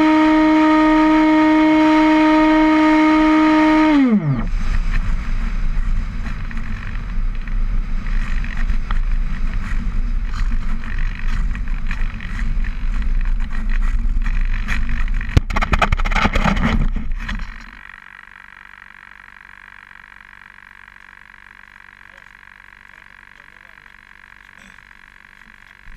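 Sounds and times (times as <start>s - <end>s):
loud rough rumbling: 0.0s - 18.0s
frogs croaking: 17.5s - 25.9s.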